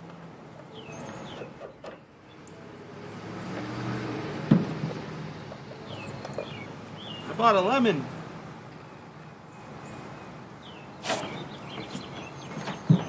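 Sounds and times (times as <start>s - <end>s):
birds chirping faintly: 5.3s - 13.0s.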